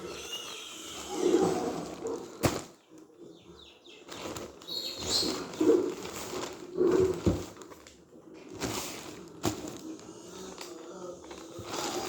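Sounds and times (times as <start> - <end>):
packaging rustling: 4.1 - 12.0.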